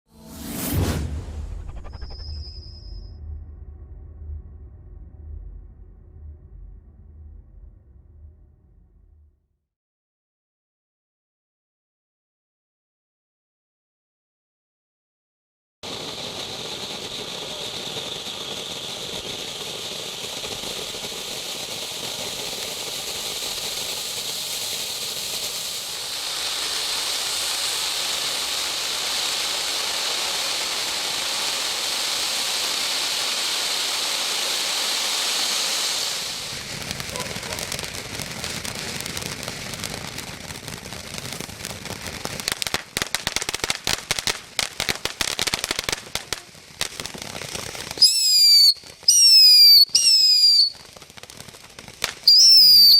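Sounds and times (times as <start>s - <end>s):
fireworks rushing and crackling: 0.1s - 3.2s, 15.8s - 52.9s
fireworks hissing: 15.8s - 52.9s
fireworks sharp cracks: 15.8s - 52.9s.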